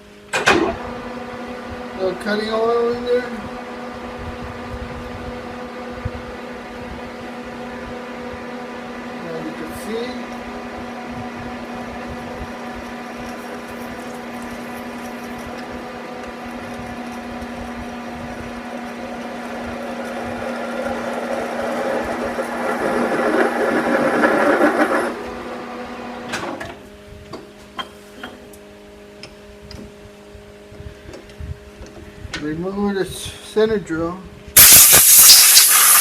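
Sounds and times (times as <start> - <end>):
lathe gear drive humming: 11.6 - 26.6
drill cutting into steel: 34.6 - 36.0.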